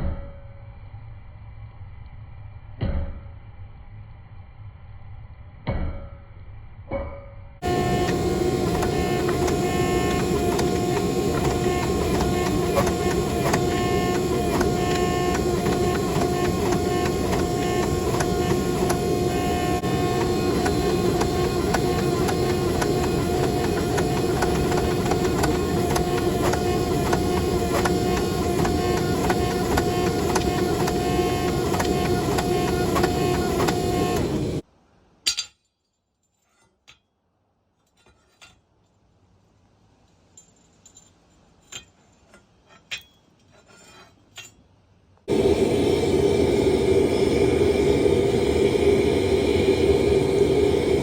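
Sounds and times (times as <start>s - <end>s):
machine-like rushing noise: 7.6s - 34.6s, 45.3s - 51.0s.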